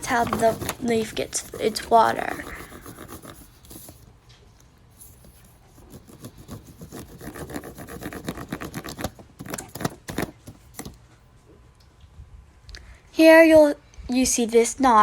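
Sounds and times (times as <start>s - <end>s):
crayon scratching on paper: 0.0s - 4.0s, 5.0s - 10.4s.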